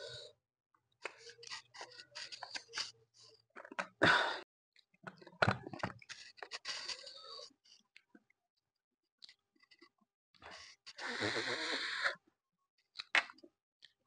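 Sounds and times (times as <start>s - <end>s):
wet chewing and mouth clicks: 12.9s - 14.0s.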